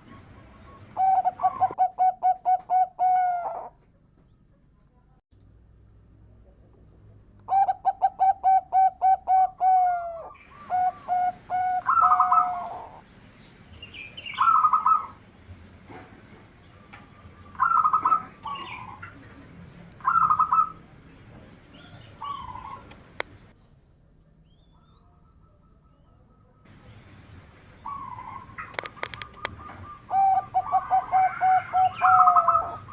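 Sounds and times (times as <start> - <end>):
dove cooing: 0.0 - 3.8, 7.5 - 13.0, 14.2 - 15.2, 16.8 - 19.4, 20.0 - 20.9, 21.7 - 23.5, 27.8 - 32.9
sharp click: 28.7 - 29.6.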